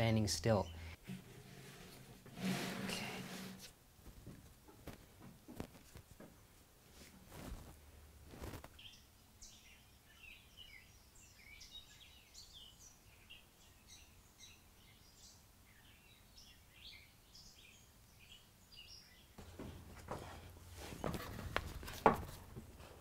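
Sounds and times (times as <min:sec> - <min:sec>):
birds chirping and trilling: 0:00.0 - 0:01.0, 0:08.8 - 0:19.5.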